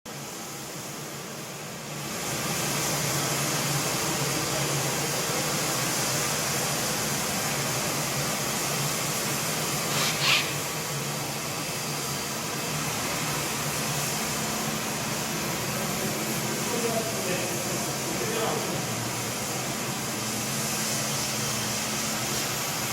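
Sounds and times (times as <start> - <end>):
floor scrubber whirring hum: 2.1 - 22.9
brief hiss: 9.4 - 10.9.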